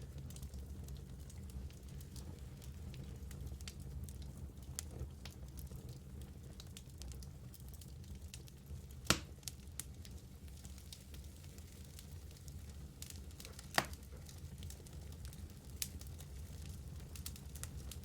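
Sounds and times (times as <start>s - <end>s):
fire rumbling in fireplace: 0.0s - 18.0s
small fire crackles: 0.0s - 18.0s
loud fire pop: 9.1s - 9.3s.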